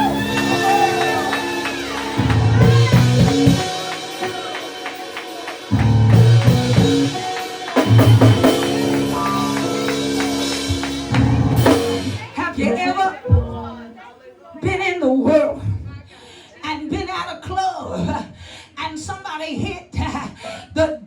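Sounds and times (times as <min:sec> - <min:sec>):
band playing low chords: 0:00.0 - 0:12.4
drum kit hits: 0:00.0 - 0:12.4.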